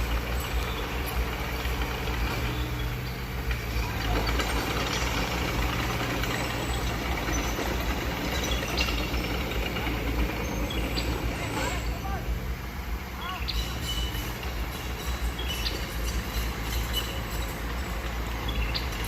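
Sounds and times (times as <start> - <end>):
heavy diesel engine running: 0.0 - 19.0.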